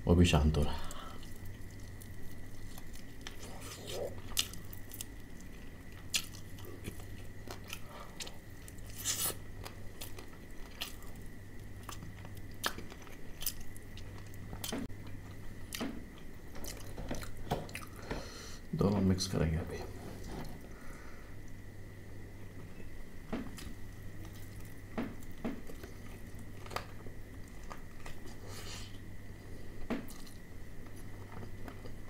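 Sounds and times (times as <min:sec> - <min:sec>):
faint steady hum: 0:00.0 - 0:32.0
chewing crispy fried chicken: 0:00.7 - 0:18.0, 0:23.5 - 0:29.0, 0:30.1 - 0:32.0.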